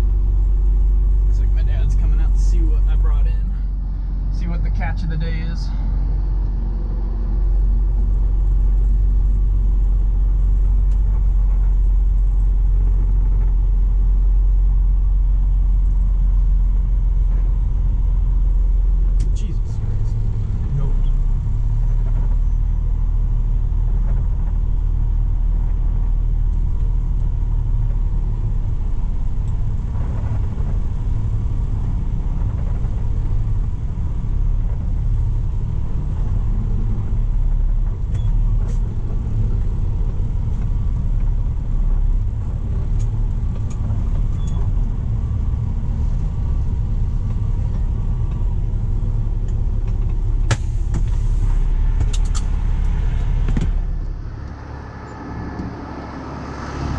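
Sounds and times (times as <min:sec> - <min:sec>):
diesel engine rumbling: 0:00.0 - 0:56.9.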